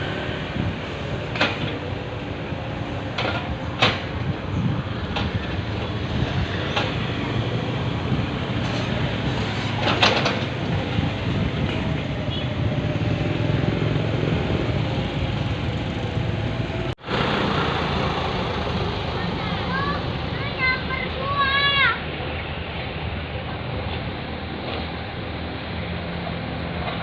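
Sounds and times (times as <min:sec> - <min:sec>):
excavator engine running: 0:00.0 - 0:20.3.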